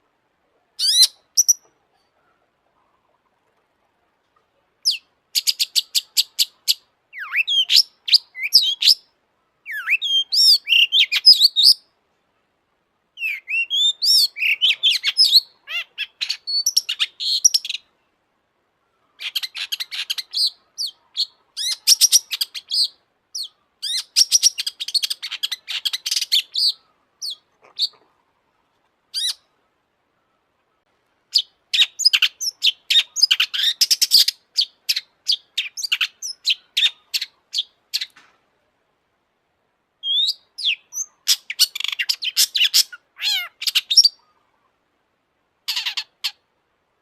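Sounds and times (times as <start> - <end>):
bird singing chattering and whistles: 0.8 - 1.7, 4.8 - 9.1, 9.7 - 11.8, 13.2 - 17.8, 19.2 - 28.0, 31.3 - 38.2, 40.0 - 44.2.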